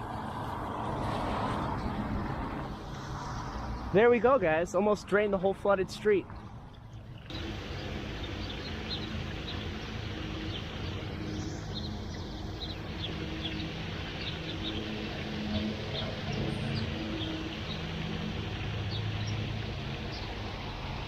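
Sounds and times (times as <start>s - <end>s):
low steady hum: 6.3s - 21.0s
small birds chirping: 6.7s - 20.4s
water rushing into storm drain: 7.2s - 21.0s.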